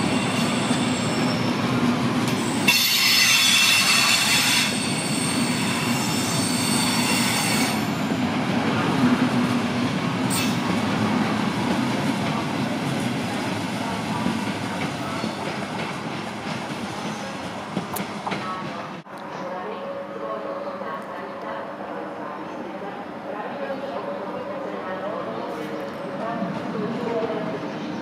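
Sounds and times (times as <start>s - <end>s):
train wheels rumbling and clattering: 0.0s - 19.1s.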